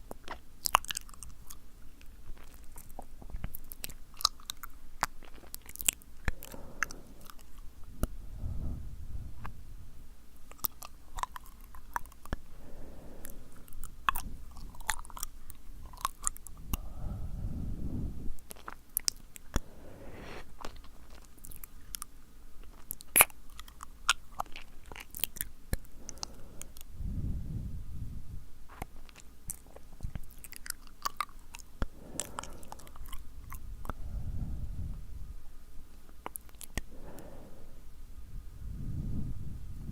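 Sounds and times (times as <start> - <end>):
wet mouth clicks and smacks: 0.0 - 1.6, 36.1 - 36.9
blowing into microphone: 7.9 - 10.0, 16.5 - 18.4, 19.5 - 20.9, 26.2 - 28.6, 32.0 - 35.4, 36.9 - 39.9.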